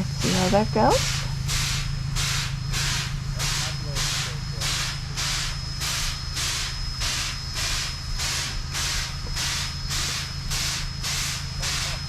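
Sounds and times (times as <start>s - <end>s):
steam locomotive hissing puffs: 0.0s - 12.0s.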